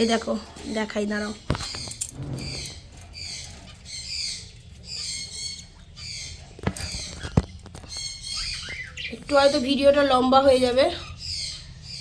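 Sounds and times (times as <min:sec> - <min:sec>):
raspy high-pitched bird calls: 0:00.0 - 0:12.0.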